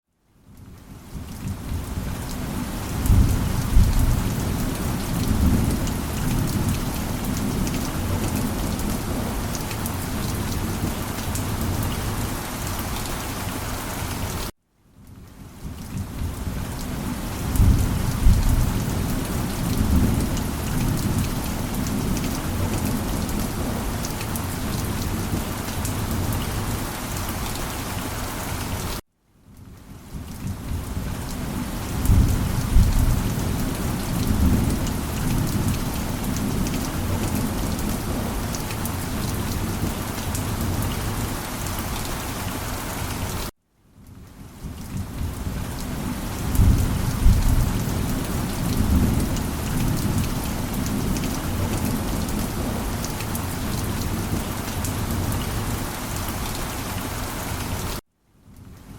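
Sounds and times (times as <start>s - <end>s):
steady rain: 0.2s - 58.9s
thunder rumbling: 1.4s - 12.3s, 16.0s - 26.8s, 31.9s - 41.3s, 45.0s - 55.7s.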